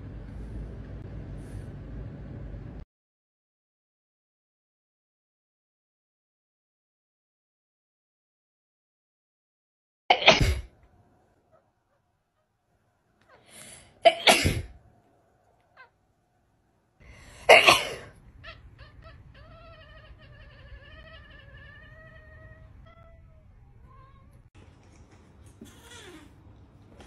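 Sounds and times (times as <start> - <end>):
cat sneezing: 10.1 - 10.7, 13.3 - 14.8, 17.4 - 18.2
cat yowling: 15.6 - 16.0, 18.3 - 24.5.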